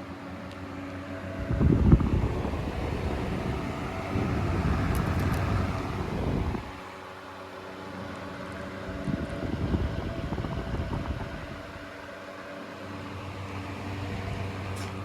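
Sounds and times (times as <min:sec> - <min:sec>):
box fan running: 0:00.0 - 0:15.0
air rumbling on microphone: 0:01.2 - 0:06.9, 0:08.8 - 0:12.0.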